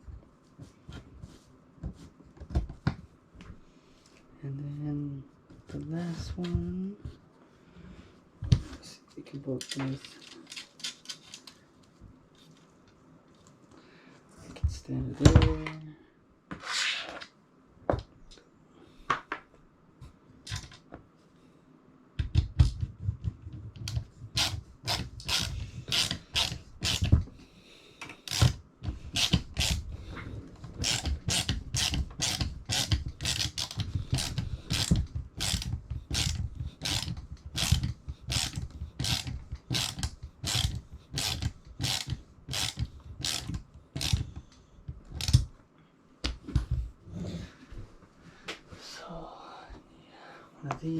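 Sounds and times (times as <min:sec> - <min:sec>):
ratchet wrench clicking: 0:30.8 - 0:44.2.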